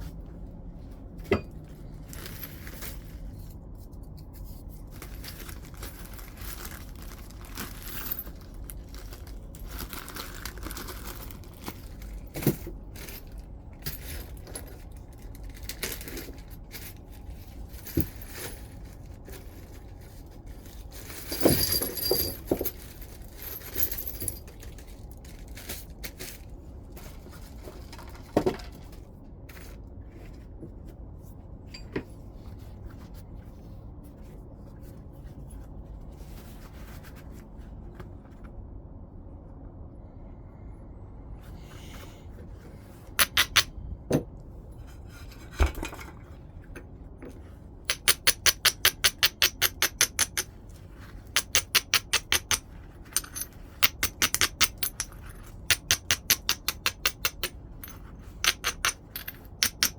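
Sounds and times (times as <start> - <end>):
knapping tool clinking on stone: 43.2 - 43.7, 53.2 - 59.9.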